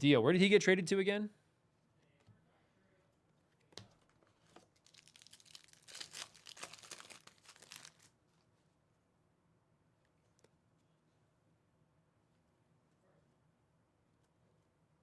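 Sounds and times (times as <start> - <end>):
plastic wrapper crinkling: 4.6 - 8.1.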